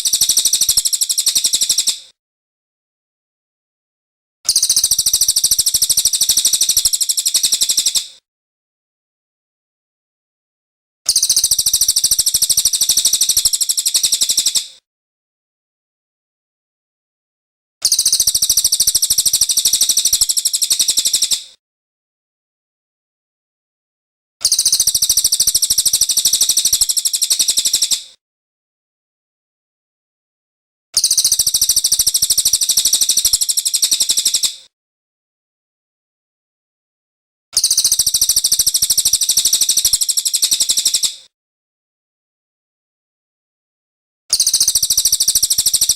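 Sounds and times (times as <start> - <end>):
songbird trilling: 0.0 - 2.0, 24.4 - 28.0, 31.0 - 34.4, 37.6 - 41.0, 44.3 - 45.9.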